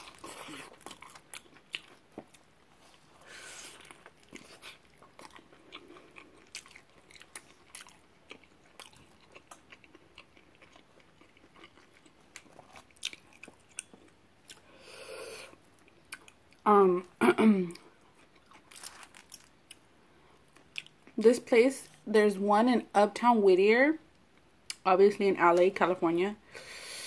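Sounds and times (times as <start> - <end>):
person biting and chewing food: 0.0 - 14.7.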